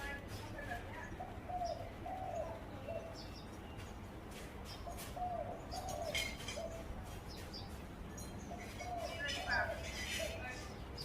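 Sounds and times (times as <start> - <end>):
small birds chirping: 0.0 - 11.0
dove cooing: 0.8 - 3.4, 4.8 - 6.9, 8.5 - 10.6.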